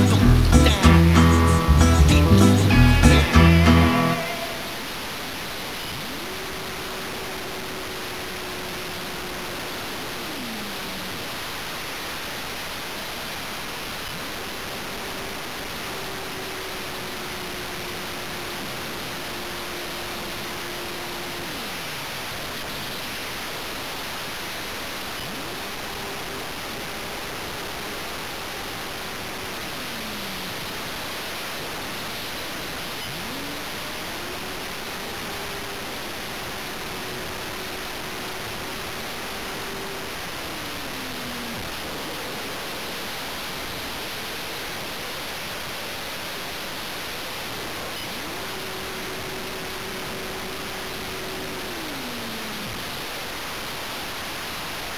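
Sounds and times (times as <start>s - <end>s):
steady hiss: 0.0s - 54.9s
electric motor whine: 2.8s - 11.2s, 14.4s - 22.6s, 24.4s - 44.8s, 47.1s - 53.9s.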